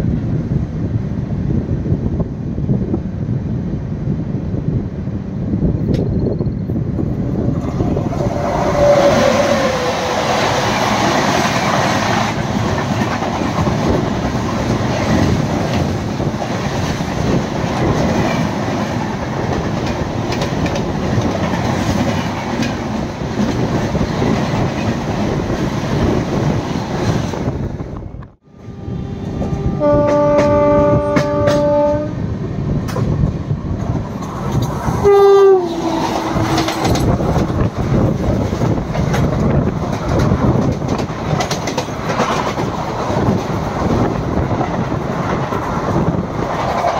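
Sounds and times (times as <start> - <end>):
rushing wind: 0.0 - 46.9
train wheel rattle: 7.3 - 27.6, 35.8 - 46.9
multi-tone locomotive horn: 8.1 - 10.7, 28.4 - 32.2, 35.0 - 37.2
train horn falling in pitch: 28.5 - 32.2, 35.0 - 37.1.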